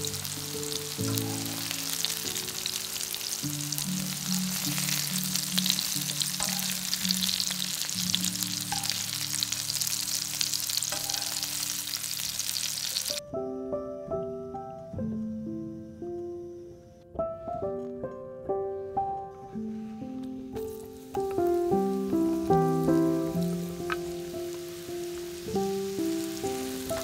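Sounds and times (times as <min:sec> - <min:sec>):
vegetables sizzling in hot oil: 0:00.0 - 0:13.2, 0:20.6 - 0:27.0
light background music: 0:00.0 - 0:27.0.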